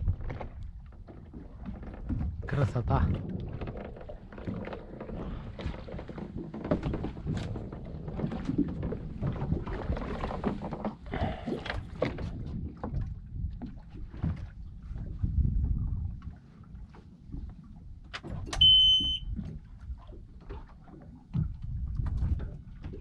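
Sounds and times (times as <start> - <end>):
knocks on hull: 0.0 - 11.0
low water wash: 0.0 - 23.0
water splashing against boat hull: 0.0 - 23.0.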